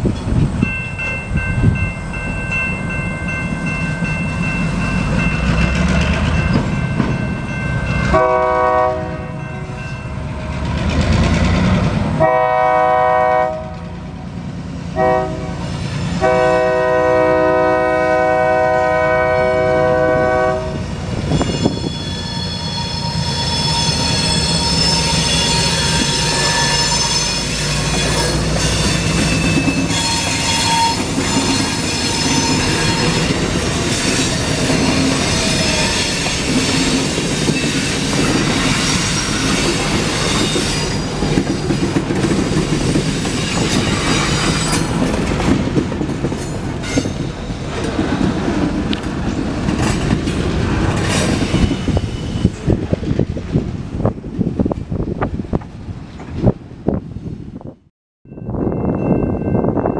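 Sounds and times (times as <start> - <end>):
diesel locomotive engine droning: 0.0 - 57.5
high wheel squeals: 21.3 - 41.7, 51.2 - 52.6
clacks over rail joints: 39.6 - 51.5.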